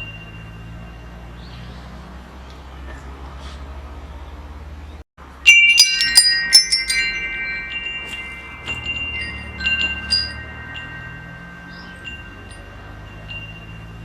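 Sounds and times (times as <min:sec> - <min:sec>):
metal wind chimes clinking: 0:00.0 - 0:02.2, 0:05.2 - 0:14.0.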